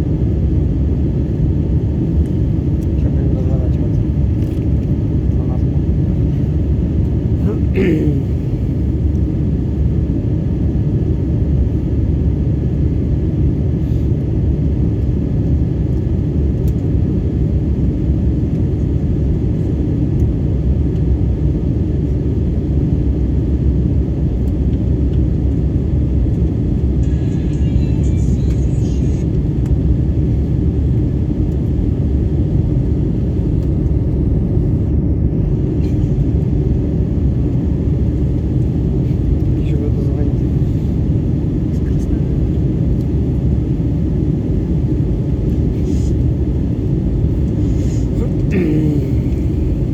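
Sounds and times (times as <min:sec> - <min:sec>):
jet engines rumbling: 0:29.2 - 0:49.9.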